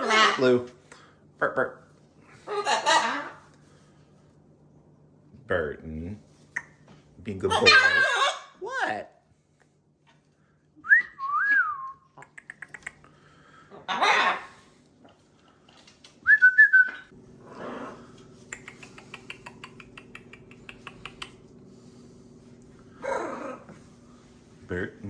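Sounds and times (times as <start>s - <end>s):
parrot harsh squawk: 0.0s - 0.6s, 2.4s - 3.5s, 7.5s - 8.6s, 13.7s - 14.7s, 23.0s - 23.7s
steady low hum: 0.0s - 7.6s, 9.0s - 25.0s.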